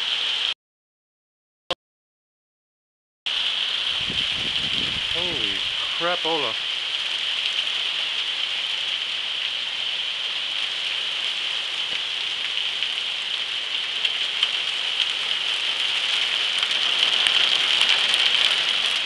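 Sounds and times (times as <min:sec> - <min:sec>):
hail patter: 0:04.0 - 0:19.0.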